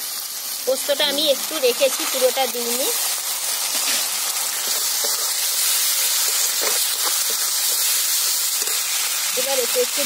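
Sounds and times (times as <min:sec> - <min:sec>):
masala sizzling in hot oil: 0:00.0 - 0:10.0
spatula stirring in pan: 0:01.8 - 0:09.5.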